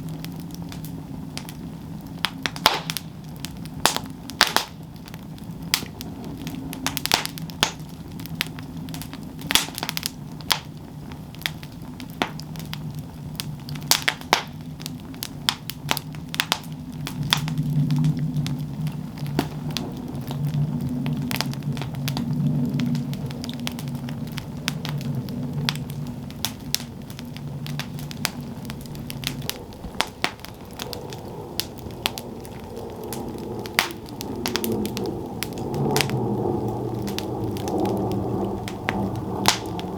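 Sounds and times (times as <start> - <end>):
campfire crackling: 0.0 - 39.9
low rumble: 16.8 - 39.9.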